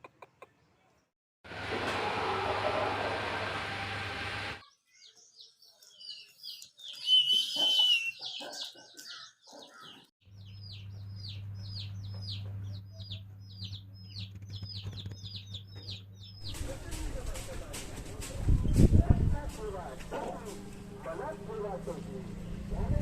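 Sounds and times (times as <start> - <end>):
birds chirping: 4.6 - 17.6.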